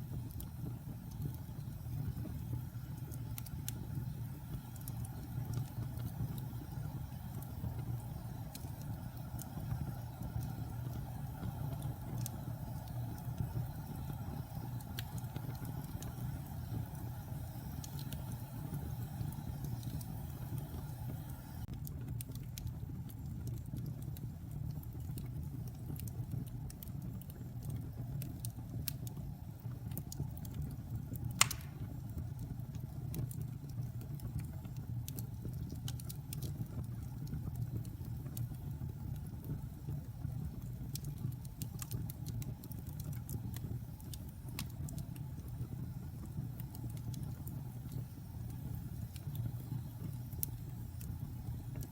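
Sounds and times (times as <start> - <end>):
fire crackling: 0.0 - 51.9
low rumble of fire flames: 0.0 - 51.9
sharp pop of burning wood: 31.4 - 32.0.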